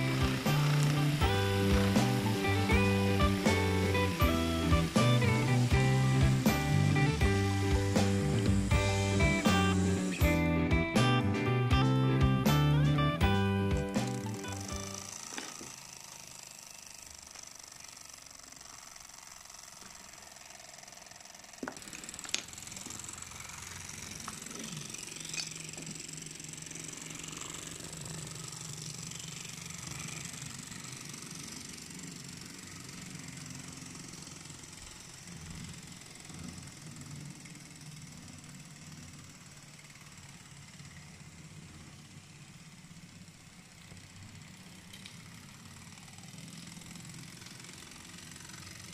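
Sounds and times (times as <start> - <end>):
model steam locomotive hissing: 0.0 - 11.2, 11.9 - 48.9.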